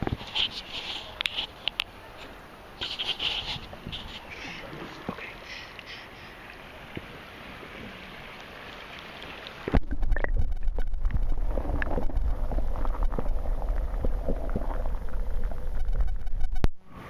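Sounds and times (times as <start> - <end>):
river water lapping and splashing: 0.0 - 17.0
muffled underwater rumble: 9.6 - 17.0.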